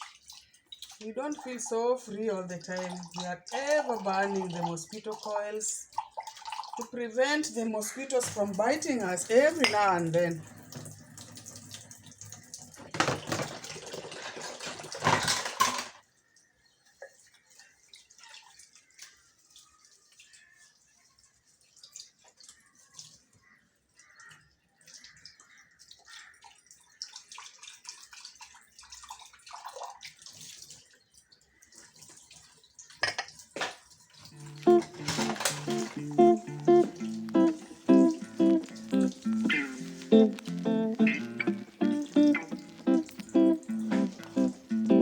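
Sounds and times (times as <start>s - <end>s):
tap water running into sink: 0.0s - 16.4s, 31.9s - 45.0s
water splashes and drips: 0.0s - 45.0s
dishes clinking: 9.5s - 10.0s, 12.9s - 16.0s, 33.0s - 33.7s, 34.4s - 36.4s.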